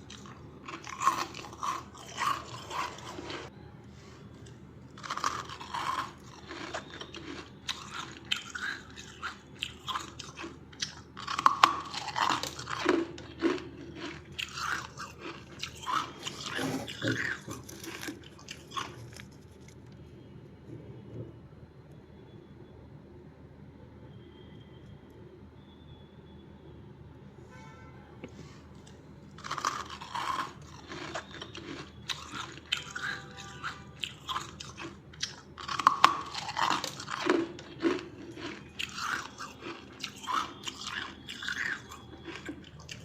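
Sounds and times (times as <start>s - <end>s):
frost being crunched and chewed: 0.0s - 3.5s, 4.4s - 20.0s, 29.4s - 43.0s.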